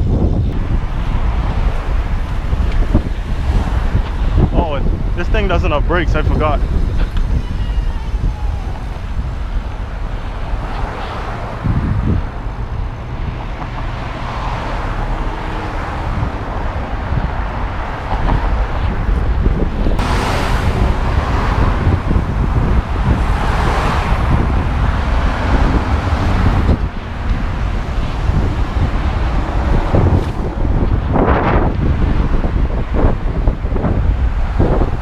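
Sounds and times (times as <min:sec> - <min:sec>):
road traffic noise: 0:00.0 - 0:35.0
wind buffeting microphone: 0:00.0 - 0:35.0.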